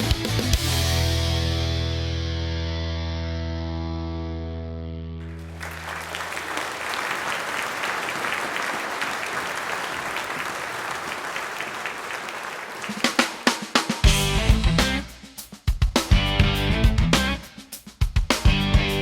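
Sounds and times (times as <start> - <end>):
electric guitar and bass chord: 0.1 - 5.3, 14.1 - 15.0, 16.2 - 17.4
audience applause: 5.2 - 14.1.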